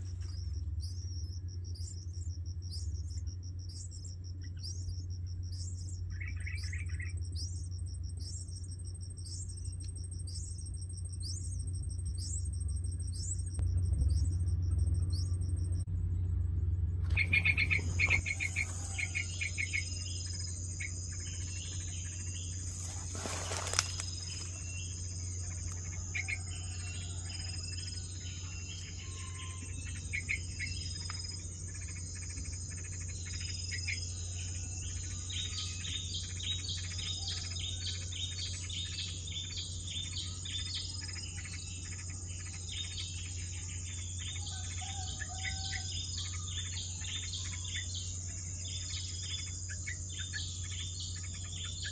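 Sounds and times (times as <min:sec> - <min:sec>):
low hum: 0:00.0 - 0:51.9
bird chirping sharply: 0:17.1 - 0:51.9
high insect buzz: 0:17.2 - 0:51.9.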